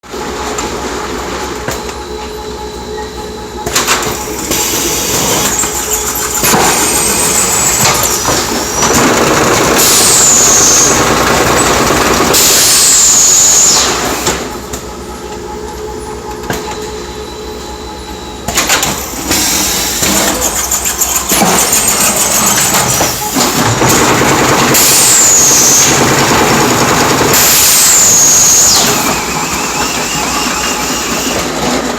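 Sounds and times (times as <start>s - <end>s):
factory machinery hum and clatter: 0.0s - 31.9s
loud hissing bursts with whine: 6.6s - 14.5s, 24.7s - 31.5s.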